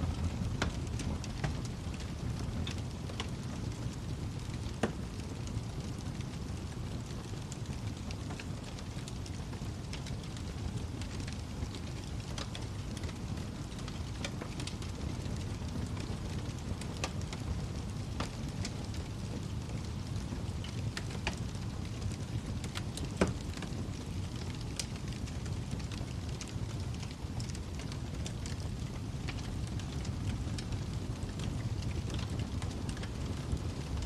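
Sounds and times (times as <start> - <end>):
fire crackles: 0.0 - 34.0
wood fire rumbling: 0.0 - 34.0.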